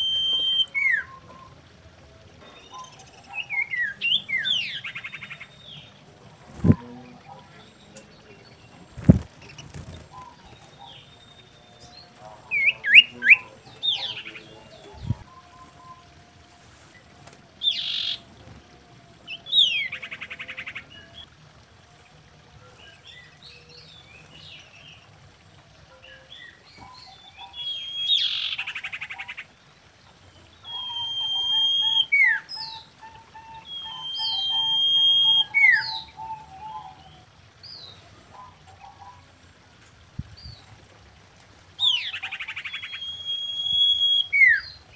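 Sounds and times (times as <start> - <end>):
bird whistling and trilling: 0.0 - 1.6, 27.4 - 29.1, 30.6 - 36.9, 41.8 - 44.8
faint low warbling: 0.0 - 28.4.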